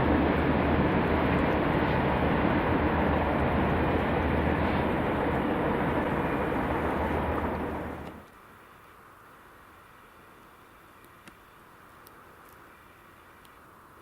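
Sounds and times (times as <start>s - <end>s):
train wheels rumbling on rail: 0.0s - 8.3s.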